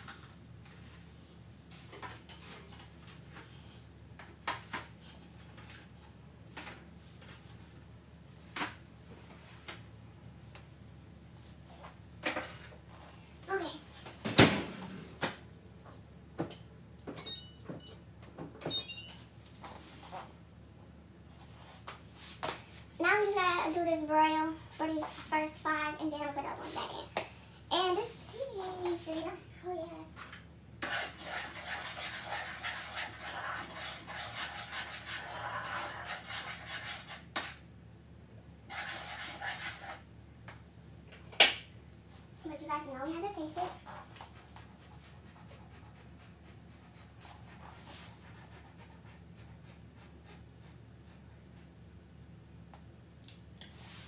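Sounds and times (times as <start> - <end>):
rubbing and scraping strokes: 30.8 - 37.6, 38.7 - 40.0.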